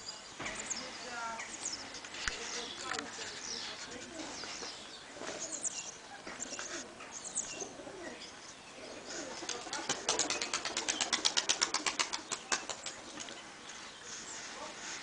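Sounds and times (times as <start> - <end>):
pigeons cooing: 2.6 - 13.5
wings flapping: 9.2 - 13.4.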